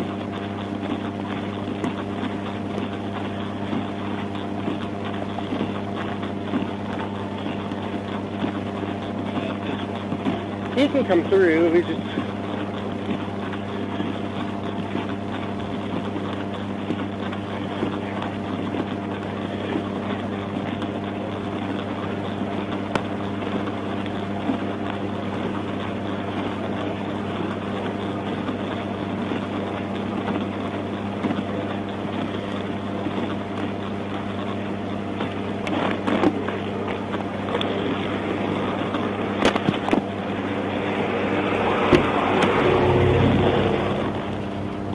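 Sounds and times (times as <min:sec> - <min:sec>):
vehicle hum: 0:35.1 - 0:44.9
road noise: 0:35.7 - 0:44.9.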